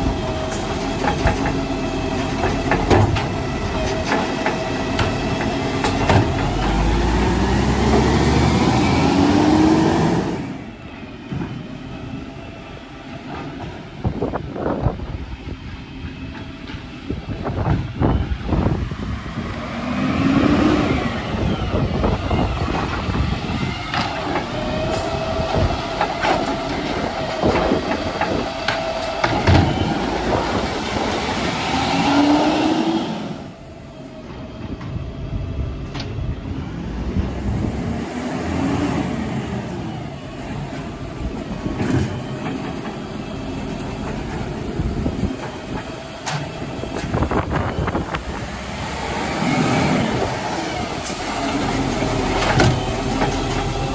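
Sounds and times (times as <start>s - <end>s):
garbage truck engine revving: 0.0s - 53.9s
wind noise on microphone: 0.0s - 53.9s
clanks and knocks: 0.5s - 7.1s, 23.9s - 30.0s, 40.6s - 47.4s, 51.0s - 53.9s.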